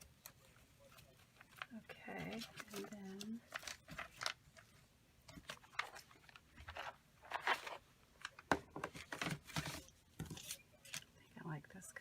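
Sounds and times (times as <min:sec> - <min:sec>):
paper rustling and crinkling: 0:00.0 - 0:11.2.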